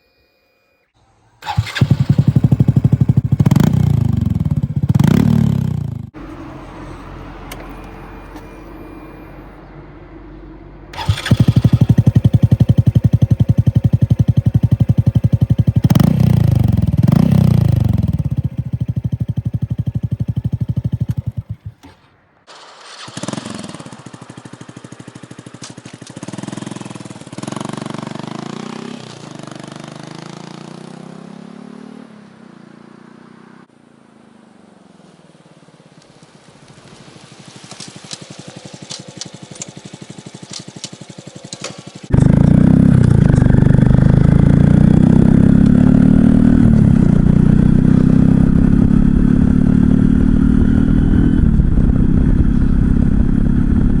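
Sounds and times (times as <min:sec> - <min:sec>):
motorcycle engine accelerating: 0:01.4 - 0:08.7, 0:10.9 - 0:33.7, 0:36.8 - 0:54.0
wind noise on microphone: 0:48.4 - 0:54.0.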